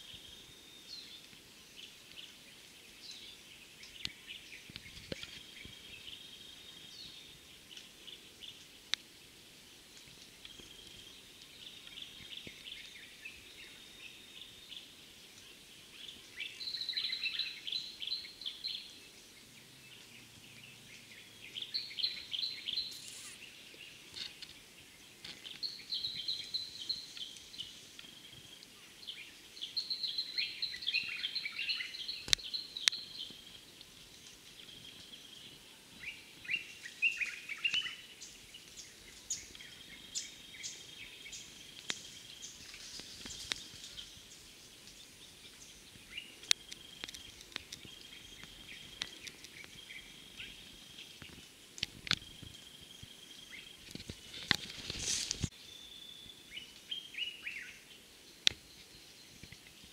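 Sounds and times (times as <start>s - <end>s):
soft bird chirps: 9.8s - 59.9s.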